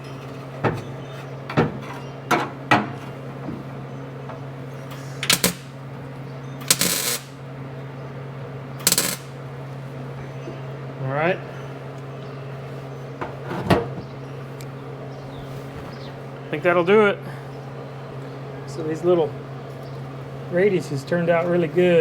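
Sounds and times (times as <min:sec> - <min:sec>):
harsh metal bursts: 0:05.0 - 0:05.8, 0:06.6 - 0:07.4, 0:08.8 - 0:09.4.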